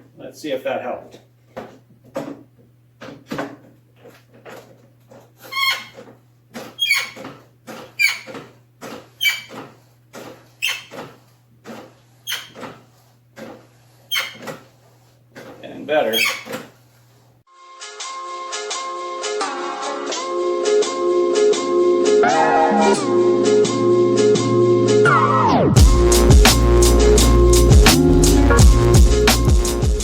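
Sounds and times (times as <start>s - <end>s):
steering column squeaking: 4.4s - 12.8s, 13.4s - 14.7s, 15.4s - 16.7s.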